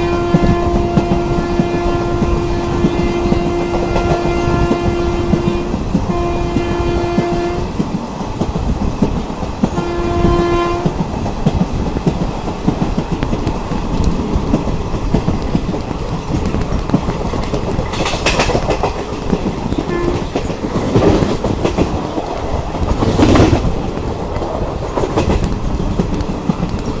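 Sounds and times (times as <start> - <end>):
train horn blast: 0.0 - 7.8, 9.7 - 11.0, 19.9 - 20.4
train clattering on rails: 0.0 - 27.0.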